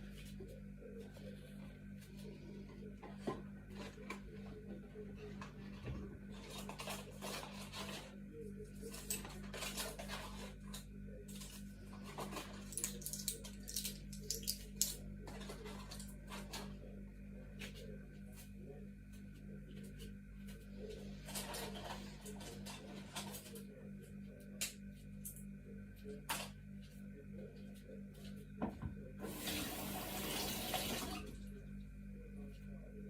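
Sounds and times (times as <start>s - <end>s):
steady low hum: 0.0s - 33.0s
items rustling and clinking: 8.8s - 14.6s.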